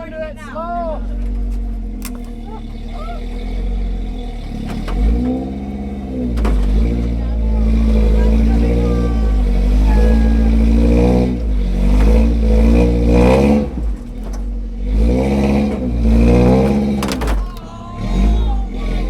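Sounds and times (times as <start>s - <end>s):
truck engine revving: 0.0s - 19.0s
sharp knocks: 6.2s - 7.0s, 16.6s - 17.6s.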